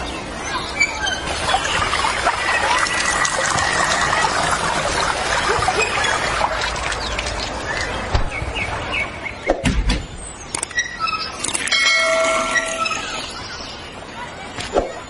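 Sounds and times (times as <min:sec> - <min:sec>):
water trickling: 0:00.9 - 0:08.1, 0:10.7 - 0:13.6
bird chirps: 0:07.0 - 0:14.0.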